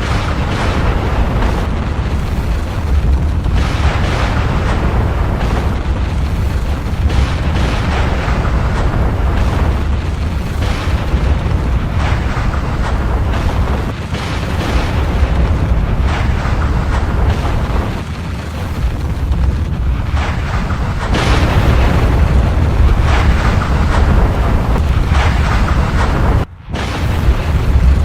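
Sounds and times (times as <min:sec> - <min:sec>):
crackling bursts: 0:00.0 - 0:28.0
deep volcanic rumble: 0:00.0 - 0:28.0.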